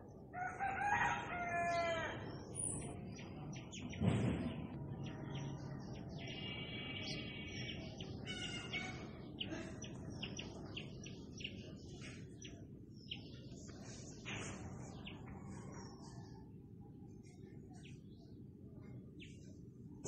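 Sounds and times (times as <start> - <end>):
birds chirping: 1.8 - 16.4.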